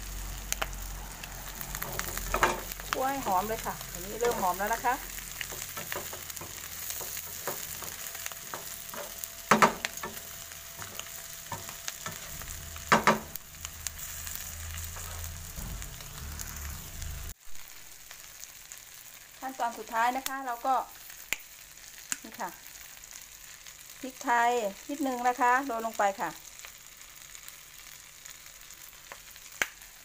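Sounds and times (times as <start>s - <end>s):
shrimp sizzling in oil: 0.0s - 30.0s
wooden spatula scraping a wok: 1.6s - 17.4s
spatula knocking on pan: 5.4s - 13.4s.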